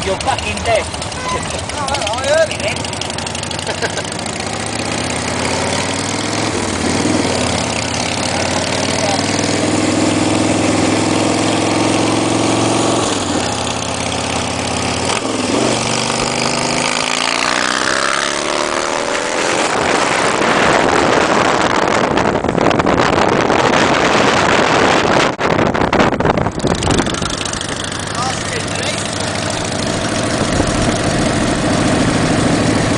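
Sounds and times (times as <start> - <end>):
motorcycle engine idling: 0.0 - 9.5, 26.4 - 32.9.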